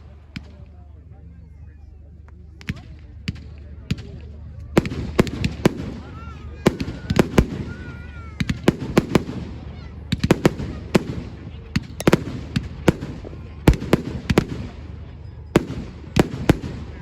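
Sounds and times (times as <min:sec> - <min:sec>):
fireworks bangs: 0:04.8 - 0:17.0.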